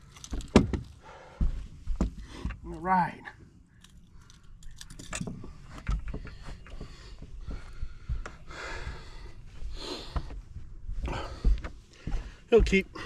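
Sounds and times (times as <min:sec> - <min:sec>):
fish handling clicks and knocks: 0:03.8 - 0:07.3.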